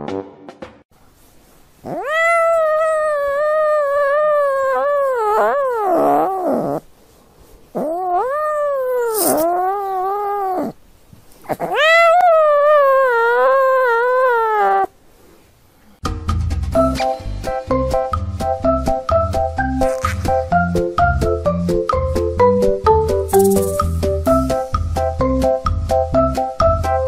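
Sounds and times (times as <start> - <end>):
cat yowling: 1.8 - 6.8, 7.8 - 10.8, 11.5 - 14.9.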